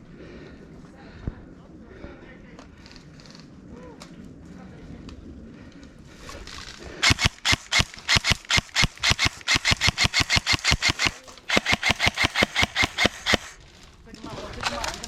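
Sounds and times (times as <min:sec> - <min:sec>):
paintball marker firing rapidly: 0:07.0 - 0:13.6.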